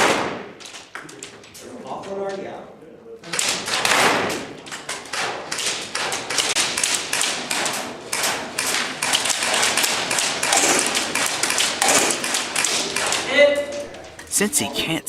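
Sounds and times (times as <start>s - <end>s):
airsoft guns firing: 0.0s - 0.6s, 3.3s - 13.3s.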